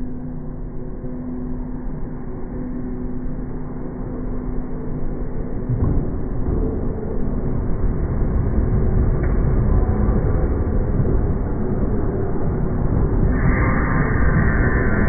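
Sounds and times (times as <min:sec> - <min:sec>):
electric train rumbling: 0:03.4 - 0:15.0.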